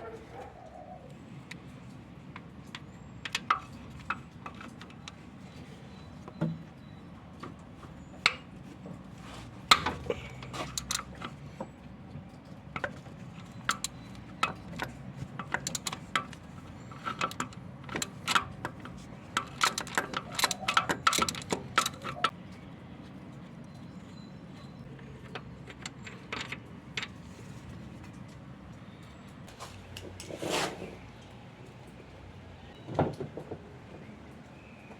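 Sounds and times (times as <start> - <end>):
metal tools clinking: 12.8 - 22.3.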